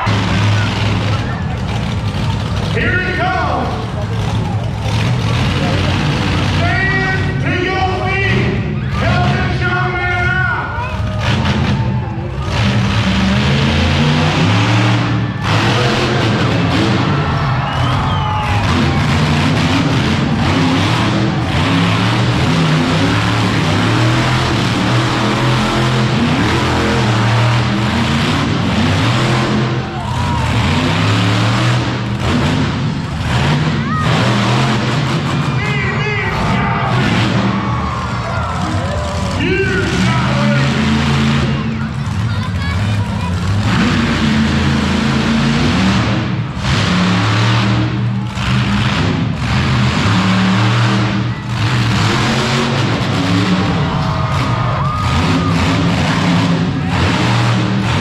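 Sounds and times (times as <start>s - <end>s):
monster truck engine revving: 0.0s - 58.0s.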